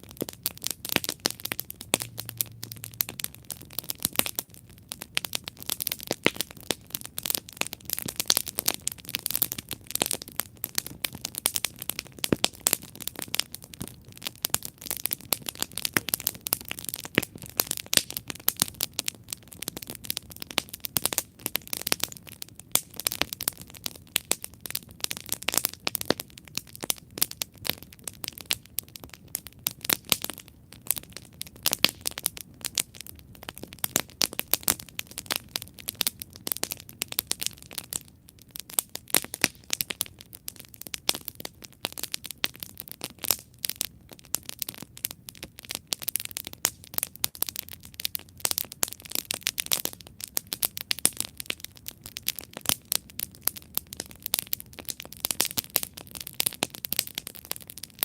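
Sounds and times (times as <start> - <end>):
soft low hiss: 0.0 - 44.2
campfire crackling and popping: 0.0 - 58.0.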